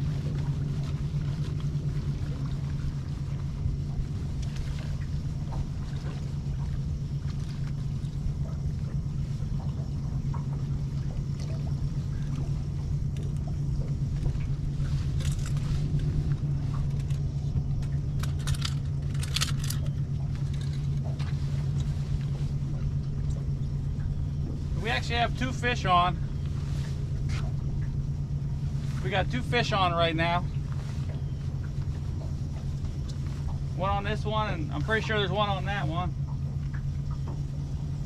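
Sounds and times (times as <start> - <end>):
boat motor humming: 0.0 - 38.0
rattles and clicks: 12.1 - 24.5.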